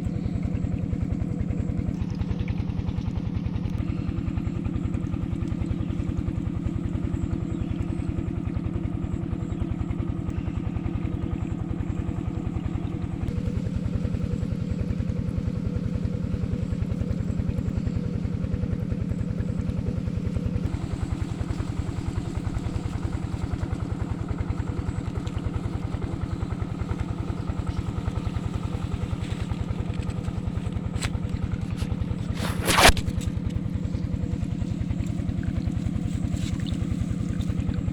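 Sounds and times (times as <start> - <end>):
diesel engine running: 0.0 - 37.9.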